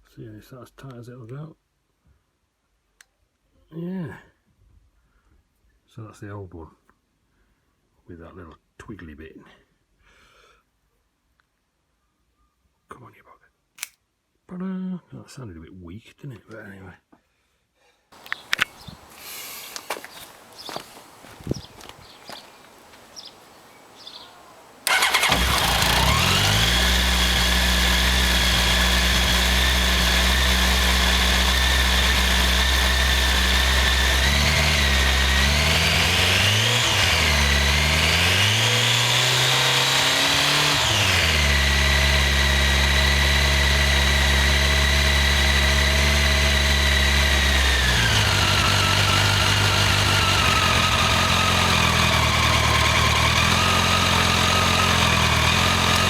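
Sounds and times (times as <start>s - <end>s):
motorcycle engine starting and idling: 18.2s - 22.4s, 23.9s - 56.0s.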